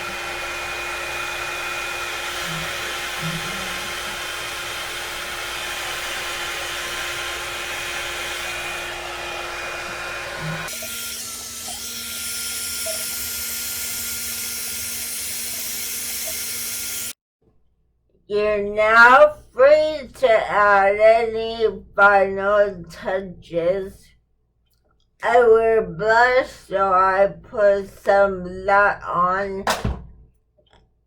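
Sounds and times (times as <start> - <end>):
blow dryer running: 0.0 - 17.2.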